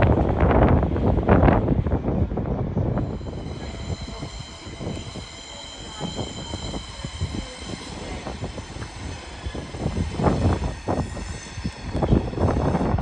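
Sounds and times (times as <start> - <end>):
high-pitched wheel squeal: 3.0 - 13.0.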